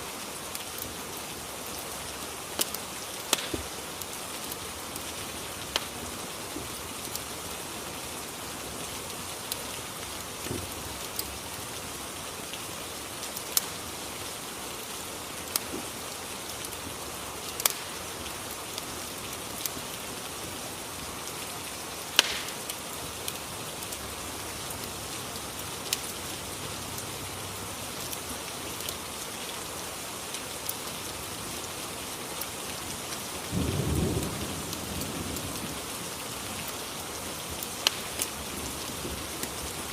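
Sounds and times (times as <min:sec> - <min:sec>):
steady rain falling: 0:00.0 - 0:39.9
fireplace crackles: 0:00.2 - 0:26.6, 0:36.6 - 0:39.9.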